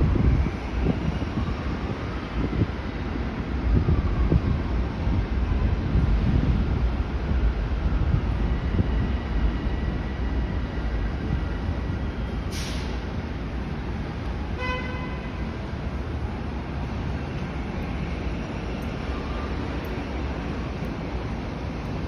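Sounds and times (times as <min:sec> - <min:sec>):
wind rumble on microphone: 0:00.0 - 0:22.0
short hiss: 0:12.5 - 0:13.0
vehicle horn toot: 0:14.6 - 0:15.4.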